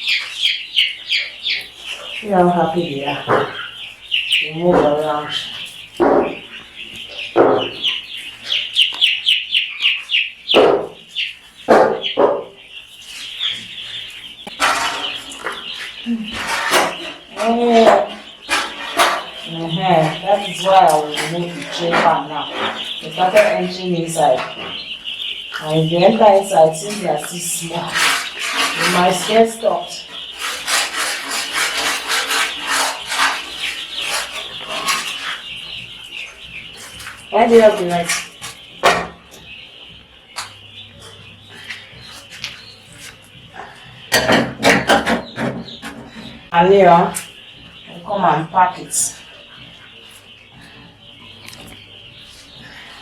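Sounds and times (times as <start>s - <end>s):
chicks peeping: 0.0s - 53.0s
tray pan scraping: 14.6s - 24.6s, 26.9s - 35.5s.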